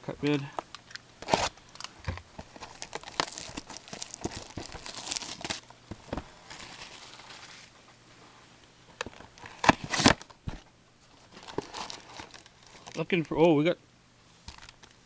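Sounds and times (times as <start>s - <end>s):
packaging clicks: 0.7s - 5.6s
packaging crinkling and tearing: 0.8s - 7.7s, 11.2s - 13.3s.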